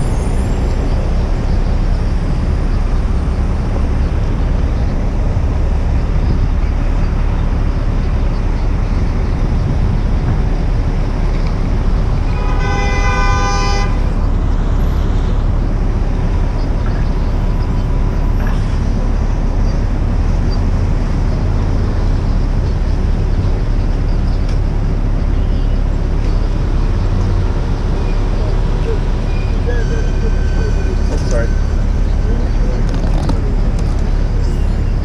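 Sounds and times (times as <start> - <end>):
wind on microphone: 0.0 - 12.3
road rumble: 0.0 - 35.0
vehicle horn honking: 12.3 - 14.1.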